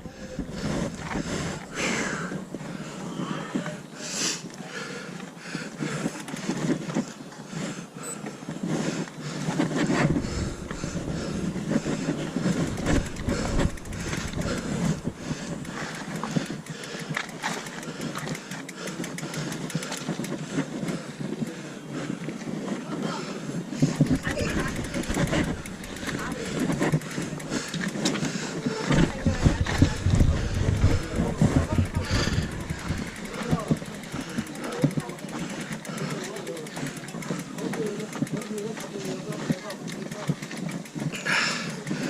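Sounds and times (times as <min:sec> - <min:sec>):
bike tyres over dirt and stones: 0:00.1 - 0:04.0, 0:05.8 - 0:42.0
bike clicks knocks and rattles: 0:05.9 - 0:07.1, 0:08.2 - 0:21.6, 0:23.7 - 0:42.0.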